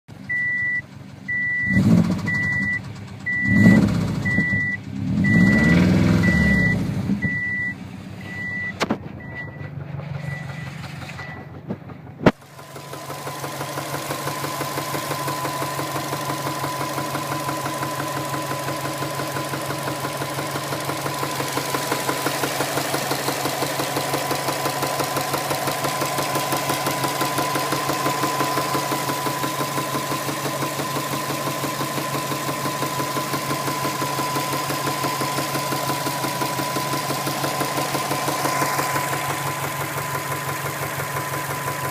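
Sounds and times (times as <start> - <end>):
car engine starting and idling: 0.1 - 41.9
dashboard warning chime beeping: 0.3 - 11.6.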